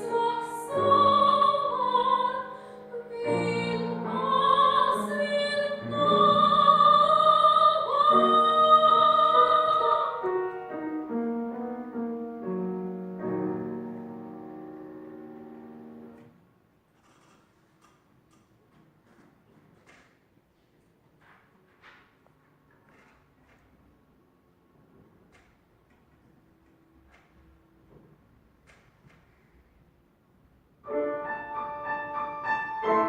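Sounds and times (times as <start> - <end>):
woman singing opera: 0.0 - 10.6
piano playing: 0.0 - 16.4, 30.8 - 33.0.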